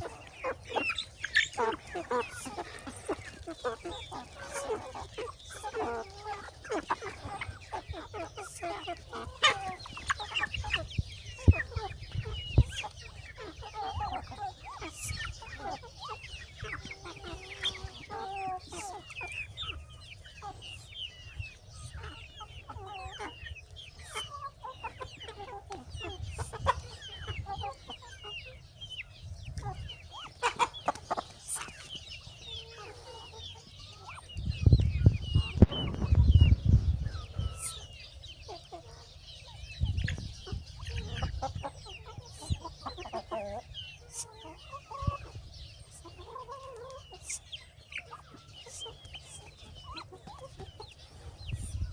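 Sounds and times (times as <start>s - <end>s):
chickens clucking: 0.0s - 51.9s
low rumbling: 34.4s - 37.7s.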